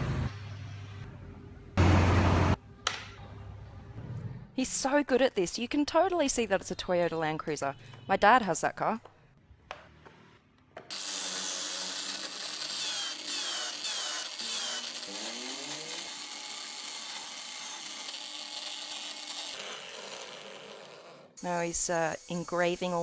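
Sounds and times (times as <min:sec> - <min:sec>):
power tool cutting into wood: 0:10.9 - 0:23.0.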